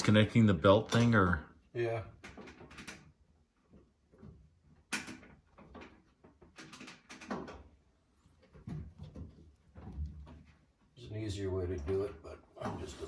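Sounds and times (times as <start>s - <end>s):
tools clicking and scraping in dryer: 2.2s - 7.8s.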